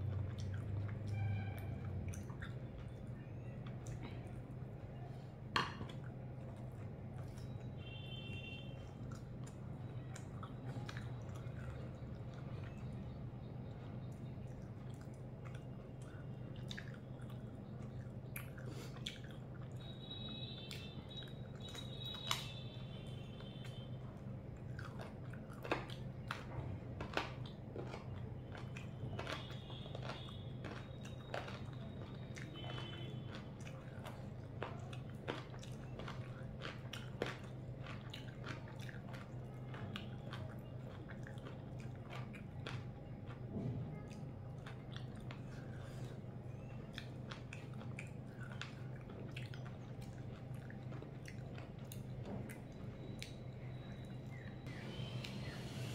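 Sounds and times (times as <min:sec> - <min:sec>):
person chewing and biting: 0:00.0 - 0:01.1, 0:14.1 - 0:43.5, 0:44.1 - 0:54.4
steady low hum: 0:00.0 - 0:55.9.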